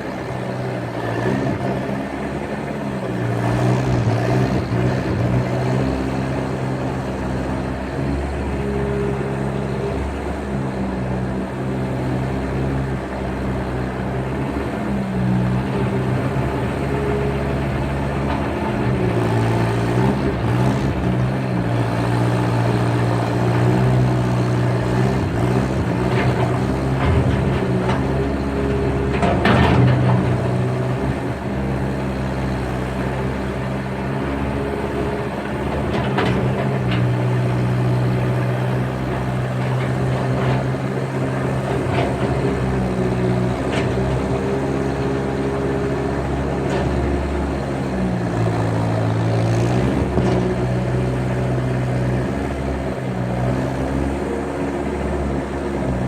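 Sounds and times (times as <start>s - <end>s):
skid steer engine running: 0.0s - 56.0s.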